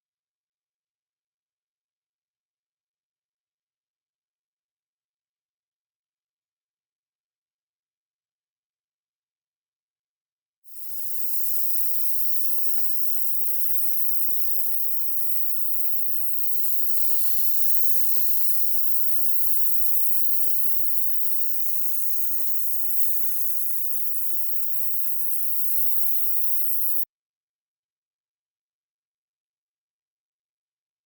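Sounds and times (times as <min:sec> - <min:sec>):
paint spray hissing: 0:10.7 - 0:27.0.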